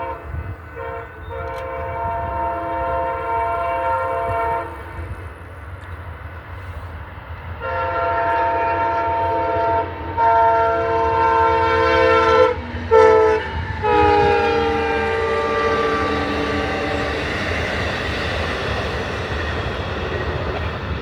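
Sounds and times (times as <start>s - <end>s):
train air horn blasts: 0.0s - 5.1s, 7.6s - 17.3s
train rumble: 0.0s - 21.0s.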